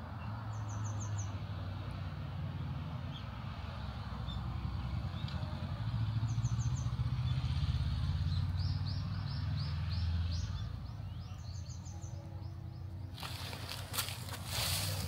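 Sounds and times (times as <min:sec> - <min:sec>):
vehicle engine humming: 0:00.0 - 0:15.0
bird chirping: 0:08.2 - 0:15.0.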